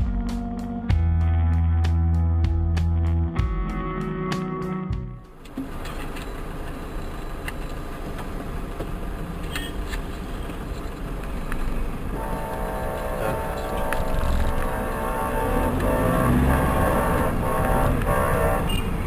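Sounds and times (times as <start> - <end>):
vehicle and road rumble: 4.9 - 19.0
long horn blast: 12.1 - 19.0.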